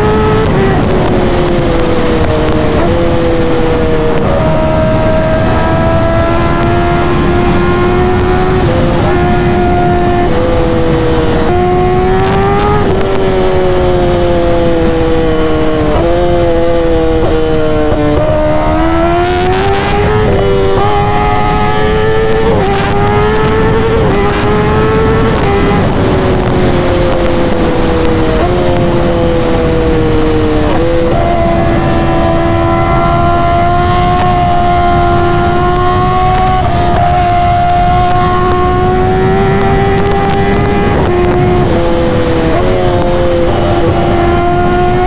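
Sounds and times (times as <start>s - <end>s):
motorcycle engine revving through gears: 0.0s - 45.0s.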